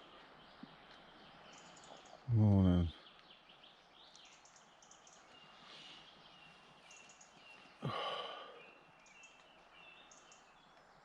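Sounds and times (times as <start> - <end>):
small birds chirping: 0.0 - 11.0
breathy falling sigh: 7.8 - 8.7.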